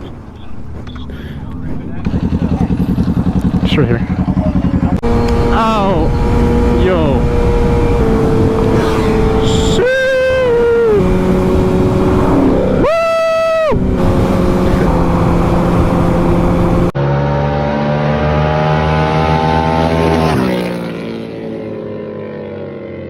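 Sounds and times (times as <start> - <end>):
motorcycle engine running: 0.7 - 12.9, 13.6 - 18.4
wind noise: 5.0 - 13.0.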